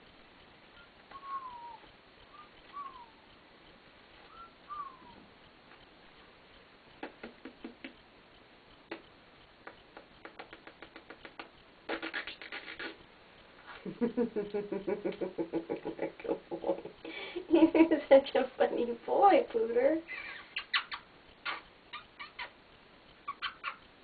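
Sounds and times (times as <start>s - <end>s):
parrot chirping: 0.6s - 3.3s, 4.2s - 5.3s, 9.6s - 13.0s, 20.1s - 24.0s
parrot clicking and scratching: 9.6s - 13.0s.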